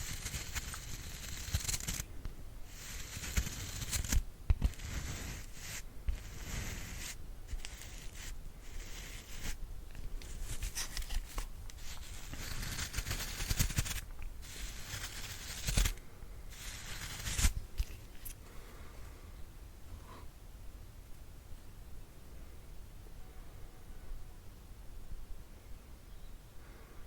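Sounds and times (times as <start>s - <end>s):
brush bristles scratching: 0.0s - 2.1s, 2.7s - 18.4s.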